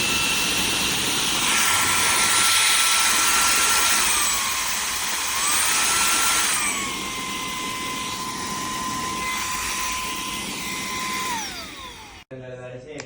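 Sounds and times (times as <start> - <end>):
handheld vacuum whining: 0.0 - 12.3.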